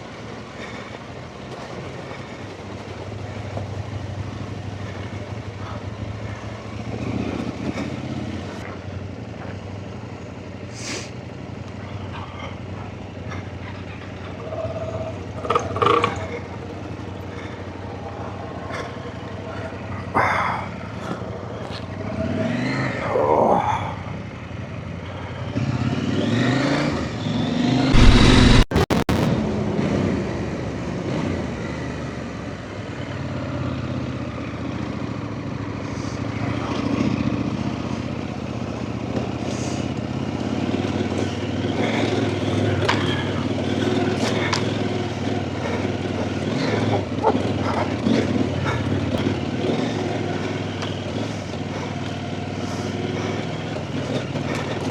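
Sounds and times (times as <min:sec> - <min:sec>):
motorcycle engine revving: 0:00.0 - 0:20.1, 0:24.3 - 0:30.0, 0:33.0 - 0:54.9.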